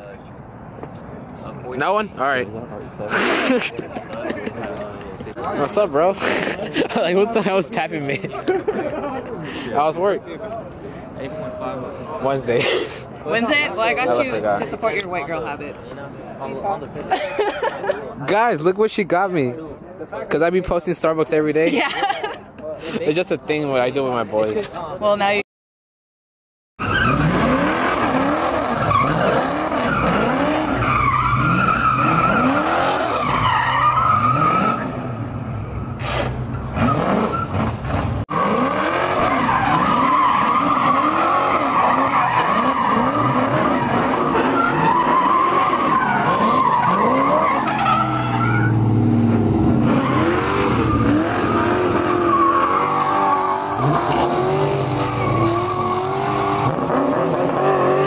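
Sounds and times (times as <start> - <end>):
tires squealing: 4.6 - 7.8, 26.8 - 58.0
car engine revving: 26.8 - 58.0.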